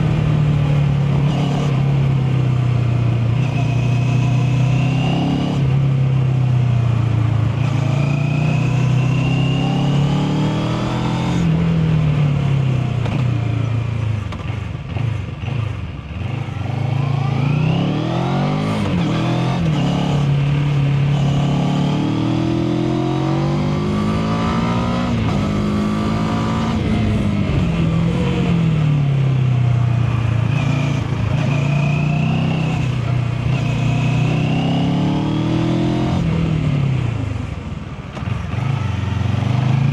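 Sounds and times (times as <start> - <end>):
motorcycle engine revving: 0.0 - 37.5.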